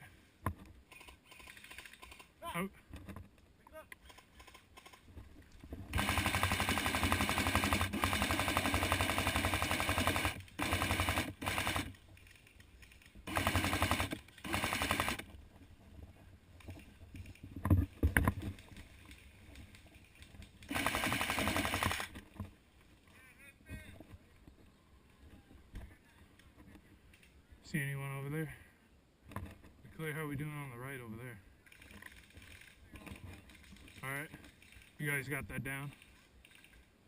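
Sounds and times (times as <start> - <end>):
airsoft gun firing rapid clicks: 5.9 - 15.3, 19.5 - 22.2.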